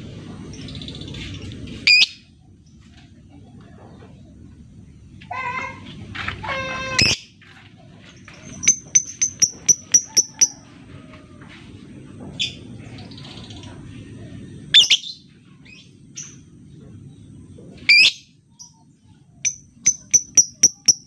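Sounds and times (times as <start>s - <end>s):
lovebird chirp: 8.3s - 10.6s, 14.7s - 16.4s, 19.4s - 21.0s
lovebird ticking chatter: 8.5s - 10.5s, 19.4s - 21.0s.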